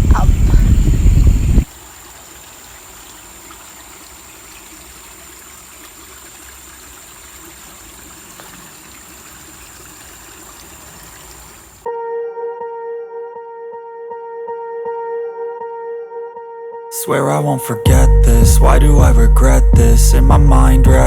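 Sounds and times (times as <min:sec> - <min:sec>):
stream trickling: 0:00.0 - 0:11.9
music: 0:11.9 - 0:21.0.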